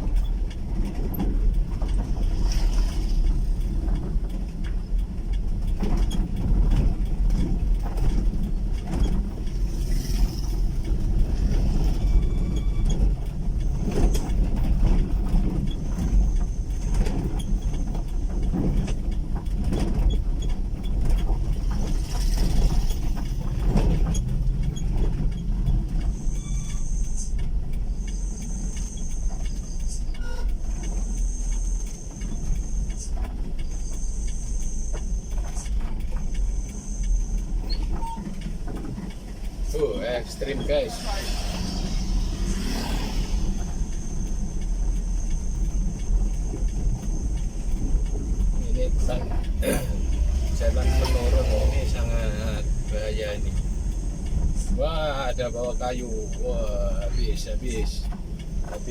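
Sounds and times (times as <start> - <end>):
vehicle engine rumble: 0.0 - 58.9.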